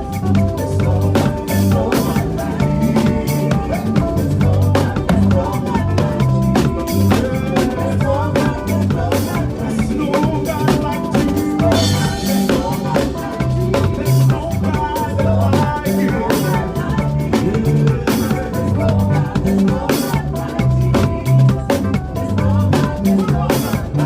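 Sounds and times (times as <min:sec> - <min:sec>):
bass line: 0:00.0 - 0:24.0
drum kit groove: 0:00.0 - 0:24.0
praise music: 0:00.0 - 0:24.0.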